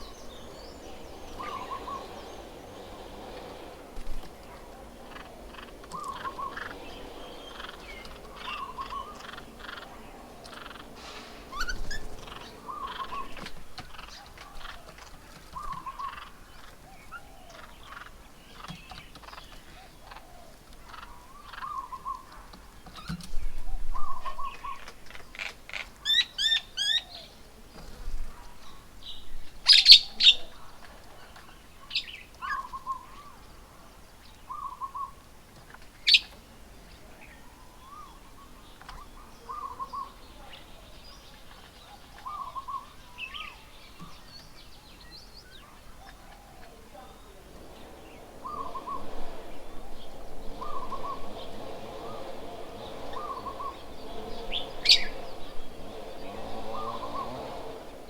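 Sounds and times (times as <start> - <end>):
rising whistled bird notes: 0.0 - 14.2, 42.2 - 58.0
loud sharp bird calls: 0.0 - 27.4, 31.2 - 58.0
birds chirping: 0.0 - 58.0.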